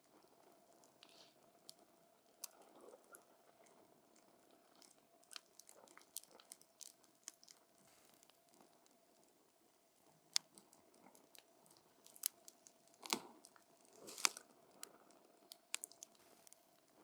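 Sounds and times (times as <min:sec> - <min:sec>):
campfire crackling: 0:15.6 - 0:16.6.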